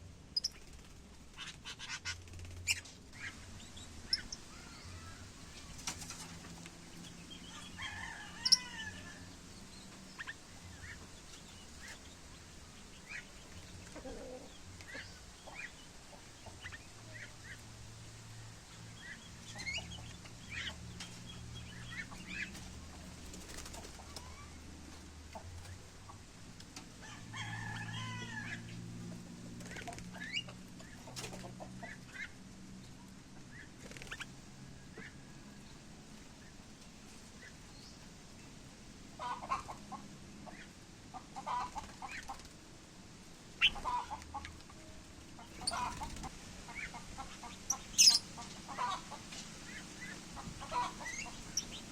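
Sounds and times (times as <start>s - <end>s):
birds chirping: 0.3s - 26.3s, 43.3s - 51.9s
birds warbling: 0.4s - 17.7s, 39.2s - 42.5s, 43.5s - 44.5s, 45.3s - 51.9s.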